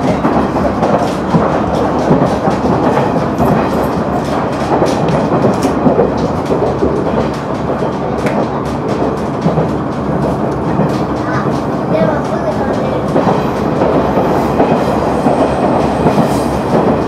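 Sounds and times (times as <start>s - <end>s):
rail joint clicks: 0.0s - 17.0s
wheels rumbling on rail: 0.0s - 17.0s.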